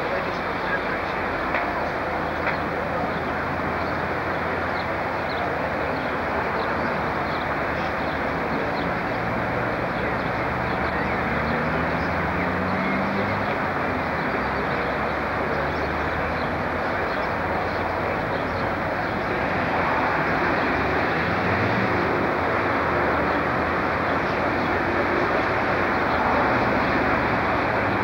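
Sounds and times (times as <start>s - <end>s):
train rumble: 0.0s - 10.8s.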